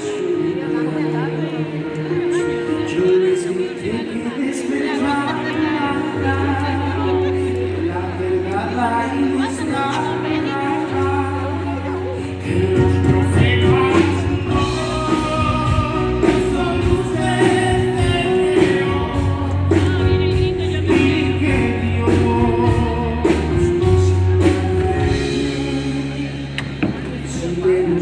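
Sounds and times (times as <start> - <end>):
live band rock ballad: 0.0 - 28.0
person singing: 0.0 - 28.0.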